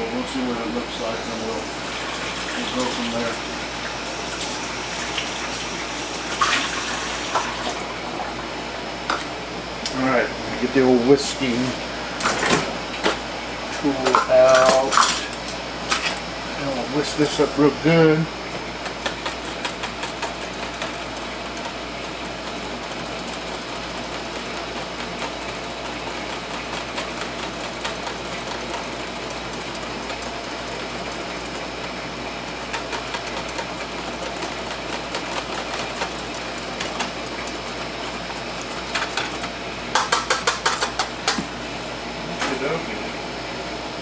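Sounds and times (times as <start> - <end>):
whisk clattering against bowl: 18.8 - 41.4
wire whisk beating in a bowl: 18.8 - 41.4.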